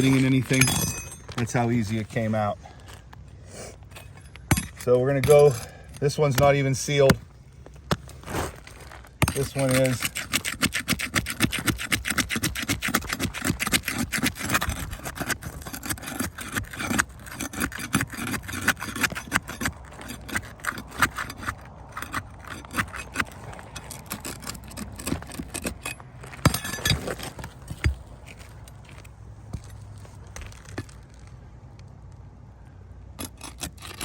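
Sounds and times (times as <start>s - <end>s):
roof shingles scraping and crackling: 4.9s - 29.1s.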